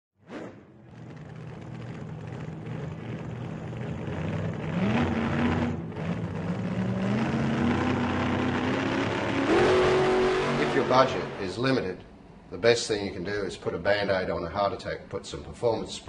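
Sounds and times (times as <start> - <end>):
car engine accelerating: 0.2 - 12.5.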